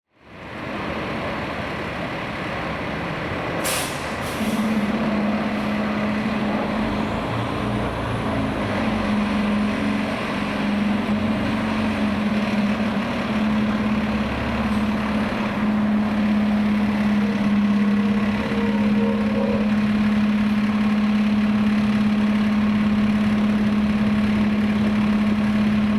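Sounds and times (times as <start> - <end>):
diesel engine running: 0.6 - 25.9
air brakes hissing: 3.6 - 4.8.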